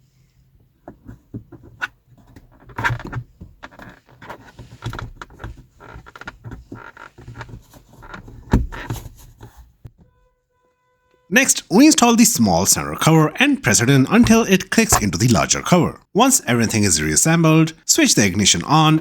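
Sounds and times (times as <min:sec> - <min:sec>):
plastic rattling and rubbing: 0:00.6 - 0:09.9.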